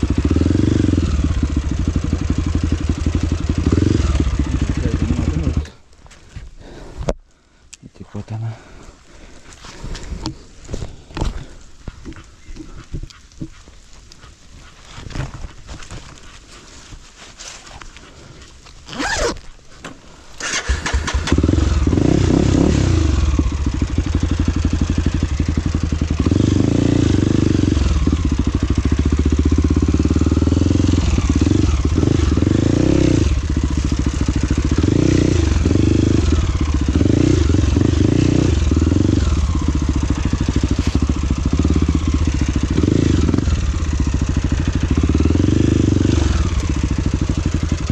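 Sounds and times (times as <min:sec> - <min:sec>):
motorcycle engine revving: 0:00.0 - 0:05.8, 0:20.4 - 0:47.9.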